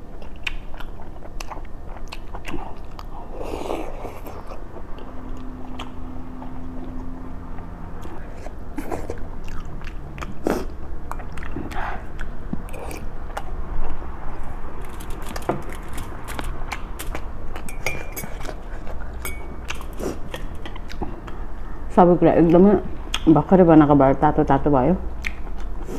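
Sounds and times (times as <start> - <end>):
person chewing and biting food: 0.0 - 21.4
wet mouth clicks: 25.2 - 25.7.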